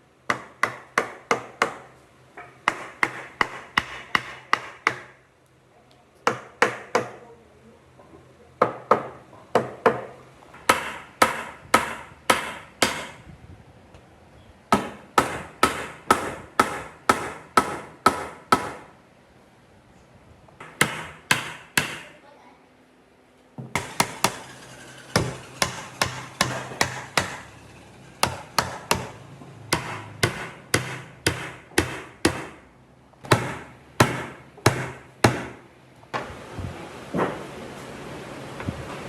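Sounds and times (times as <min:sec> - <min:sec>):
hand tool striking wood: 0:20.6 - 0:22.1, 0:23.6 - 0:32.6, 0:33.2 - 0:35.6.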